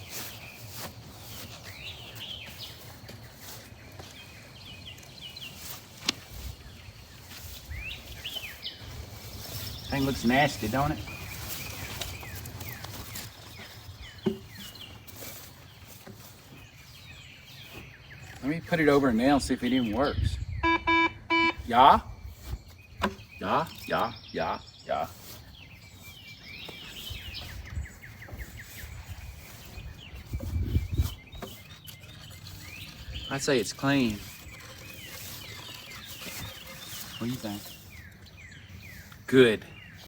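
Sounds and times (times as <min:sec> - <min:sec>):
birds chirping: 0:00.0 - 0:40.0.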